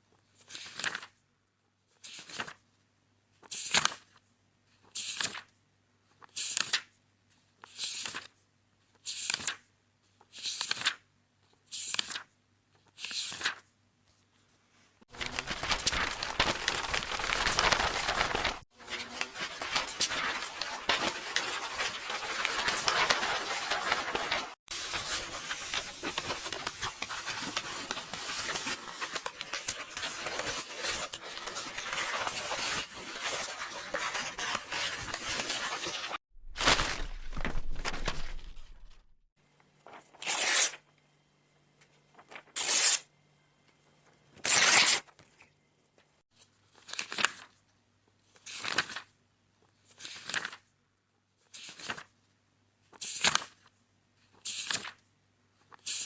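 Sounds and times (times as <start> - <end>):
book pages turning: 0.4 - 1.2, 2.0 - 2.6, 3.4 - 4.2, 4.8 - 5.5, 6.2 - 6.9, 7.6 - 8.4, 9.0 - 9.6, 10.2 - 11.0, 11.6 - 14.5, 15.1 - 39.2, 39.8 - 40.8, 42.2 - 43.0, 46.7 - 47.6, 48.3 - 49.1, 49.7 - 50.7, 51.5 - 52.2, 52.9 - 53.7, 54.3 - 55.0
paper tearing and rustling: 15.1 - 39.0, 39.9 - 40.8, 42.2 - 43.0, 44.4 - 45.1.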